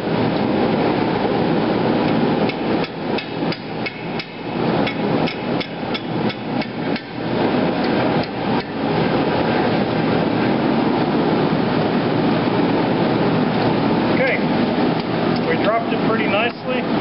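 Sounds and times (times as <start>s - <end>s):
steady rushing noise: 0.0s - 17.0s
hammer striking hot steel on anvil: 2.5s - 7.2s.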